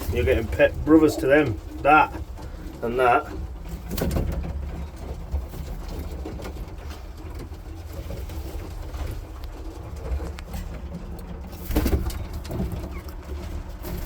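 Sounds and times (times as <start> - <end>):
pigeons cooing softly: 11.4 - 14.0.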